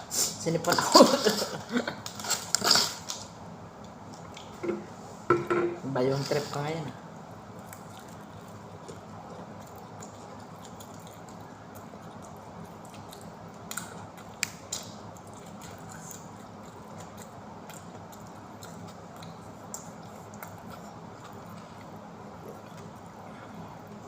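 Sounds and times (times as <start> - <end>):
low background hum: 0.0 - 24.0
person chewing food: 7.5 - 24.0.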